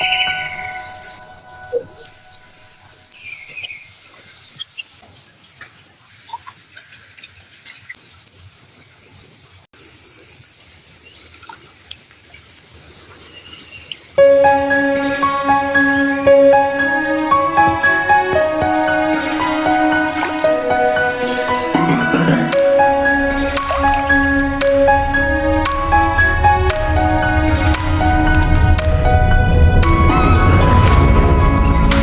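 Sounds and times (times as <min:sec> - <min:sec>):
faint bird chirps: 0:00.0 - 0:14.2
high-pitched insect chorus: 0:00.0 - 0:32.0.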